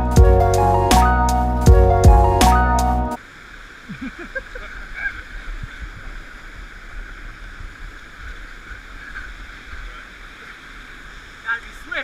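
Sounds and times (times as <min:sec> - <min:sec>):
river water rushing: 0:03.2 - 0:12.0.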